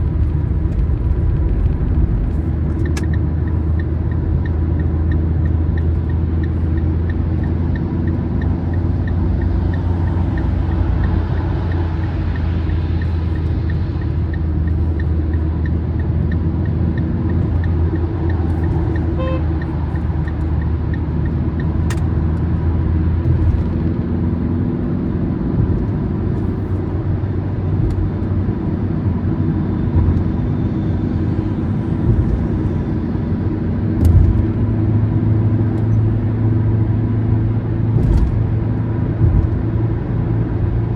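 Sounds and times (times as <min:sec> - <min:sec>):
low engine hum: 0:00.0 - 0:40.9
tyre and road rumble: 0:00.0 - 0:40.9
faint regular ticking: 0:02.7 - 0:23.7.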